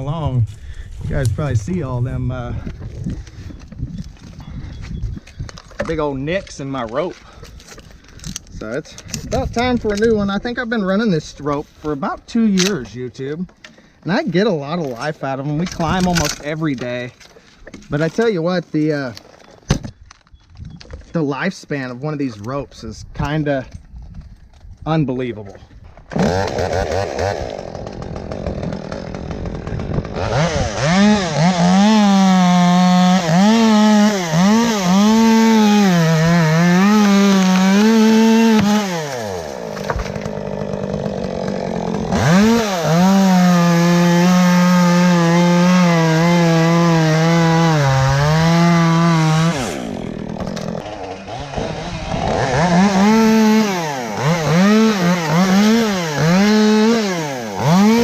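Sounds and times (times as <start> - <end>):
chainsaw cutting wood: 26.0 - 58.0.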